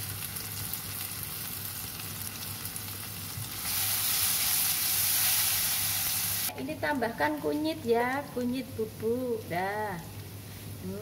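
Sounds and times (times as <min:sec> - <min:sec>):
paste sizzling in hot oil: 0:00.1 - 0:06.5.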